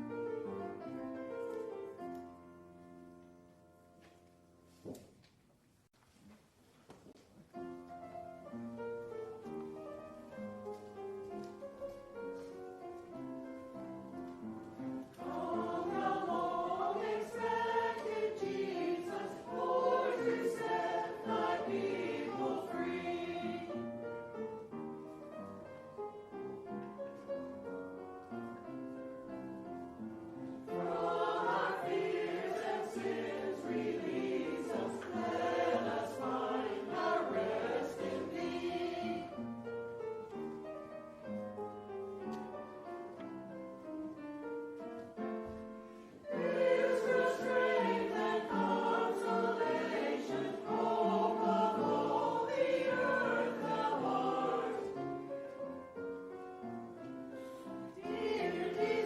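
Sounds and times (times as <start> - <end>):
choir singing: 14.8 - 24.6, 30.4 - 39.6, 46.2 - 56.1, 57.4 - 59.0.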